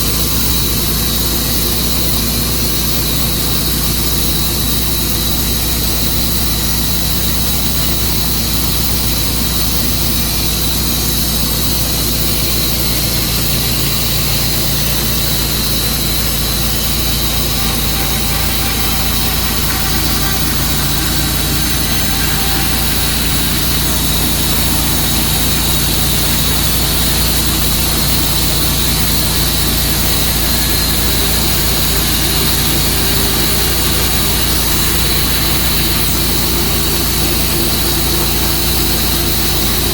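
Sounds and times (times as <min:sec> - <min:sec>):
sawmill engine drone: 0:00.0 - 0:39.9
steady high whine: 0:00.0 - 0:39.9.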